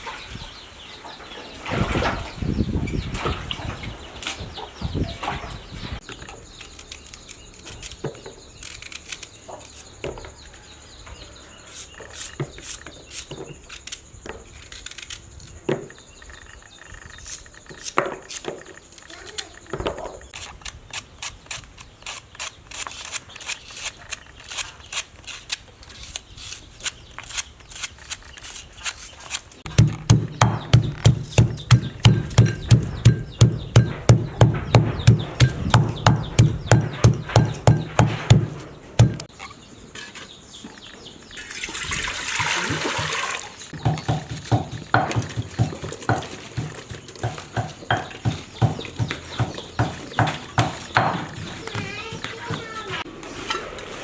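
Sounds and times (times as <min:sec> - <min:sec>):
knife chopping on cutting board: 0:29.7 - 0:39.3, 0:43.8 - 0:52.6.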